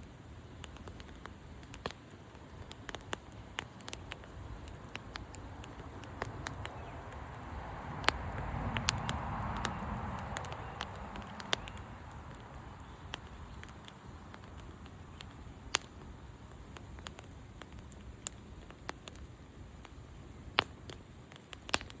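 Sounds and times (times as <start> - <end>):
campfire crackling and popping: 0.0 - 22.0
low steady hiss: 0.0 - 22.0.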